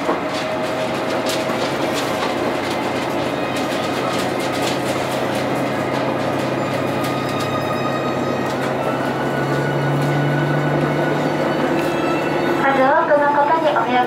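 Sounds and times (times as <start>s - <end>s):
faint clicks over rail joints: 0.0s - 7.8s
railcar engine hum: 0.0s - 14.0s
wheels rolling on rails: 0.0s - 14.0s.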